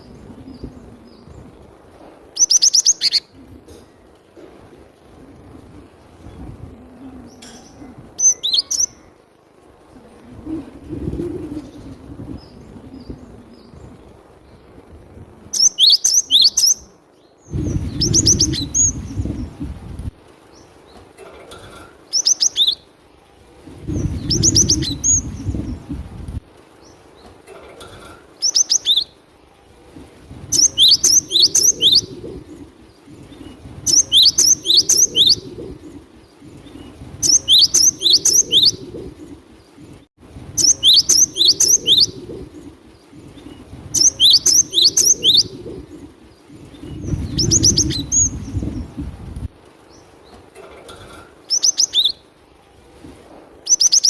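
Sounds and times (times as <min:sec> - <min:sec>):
low rumble: 0:23.5 - 0:26.5, 0:45.2 - 0:49.6.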